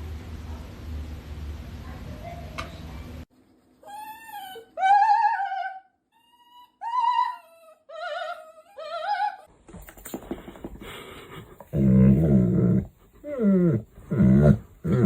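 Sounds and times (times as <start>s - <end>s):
dog howling: 3.9s - 6.0s.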